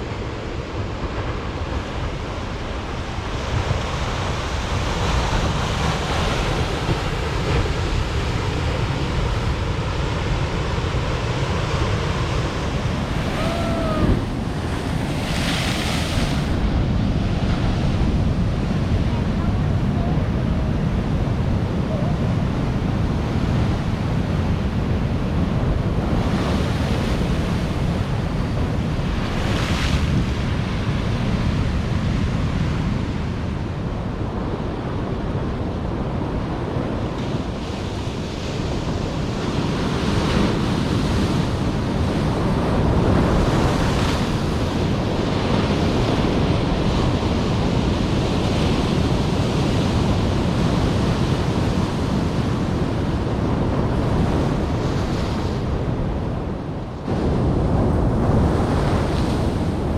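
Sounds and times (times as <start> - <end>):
waves breaking and hissing: 0.0 - 20.3
wind rumble on microphone: 0.0 - 59.9.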